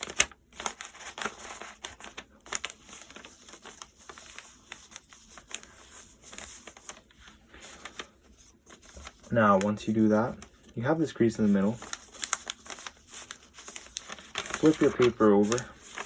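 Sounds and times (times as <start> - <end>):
paper being folded and creased: 0.0 - 16.0.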